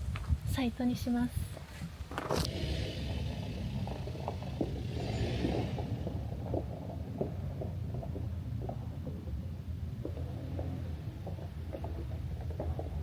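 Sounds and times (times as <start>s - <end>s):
car engine rumbling: 0.9s - 13.0s.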